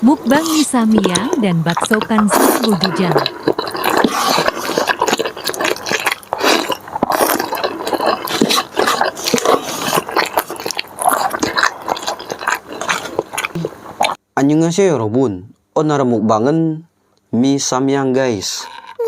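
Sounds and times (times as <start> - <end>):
chewing with smacks: 0.2 - 14.2.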